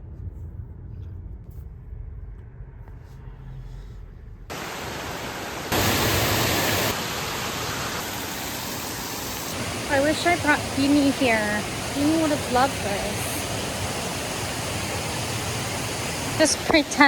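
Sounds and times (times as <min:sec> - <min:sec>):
low rumble: 0:00.0 - 0:04.6
waterfall rushing: 0:04.5 - 0:17.0.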